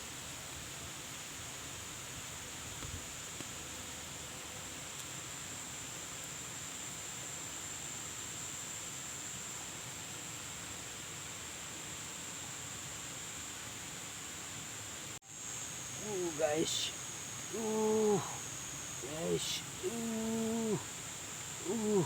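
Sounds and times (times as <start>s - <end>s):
even outdoor hiss: 0.0s - 22.0s
high-pitched insect drone: 15.3s - 22.0s.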